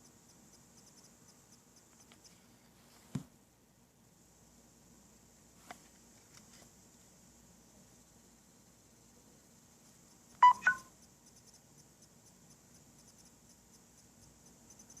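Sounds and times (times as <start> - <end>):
faint rapid ticking: 0.0 - 2.3, 9.9 - 15.0
short electronic beeps: 10.4 - 10.9.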